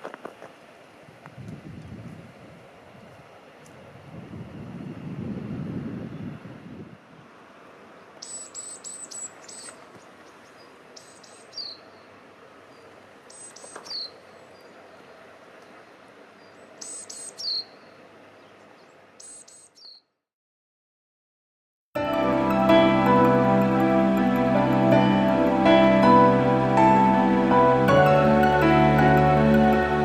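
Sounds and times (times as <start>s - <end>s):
faint outdoor background hiss: 0.0s - 20.2s, 22.0s - 30.0s
small bird chirping: 8.0s - 12.1s, 12.7s - 15.2s, 16.4s - 20.2s.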